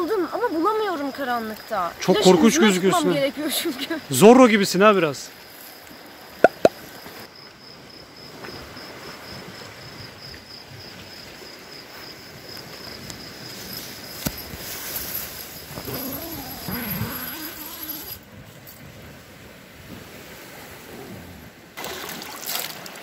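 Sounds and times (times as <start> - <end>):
crickets trilling: 0.0 - 18.3.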